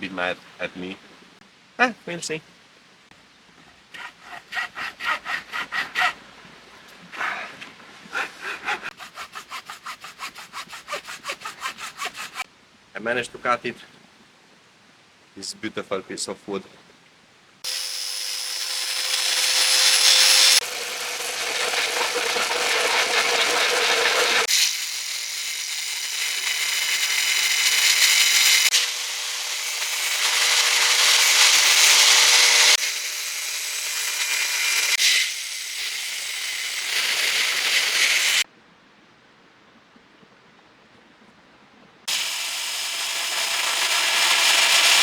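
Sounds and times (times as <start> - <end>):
power tool grinding wood: 8.9 - 12.4, 17.7 - 38.4, 42.1 - 45.0.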